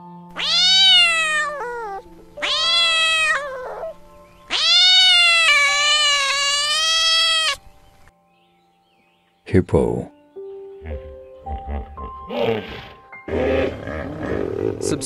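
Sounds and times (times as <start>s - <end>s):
faint background music: 0.0s - 15.0s
kitten meowing: 0.3s - 7.6s.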